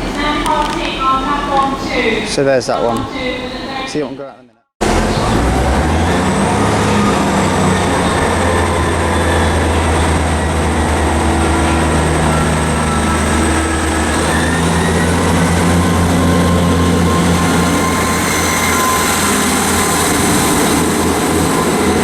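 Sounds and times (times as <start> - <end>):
train low hum: 0.0 - 4.2, 4.8 - 22.0
thin high whine: 6.8 - 22.0.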